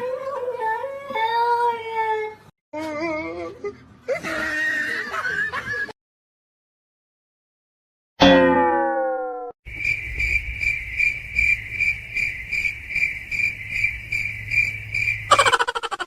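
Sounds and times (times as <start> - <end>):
crickets chirping: 9.7 - 16.0.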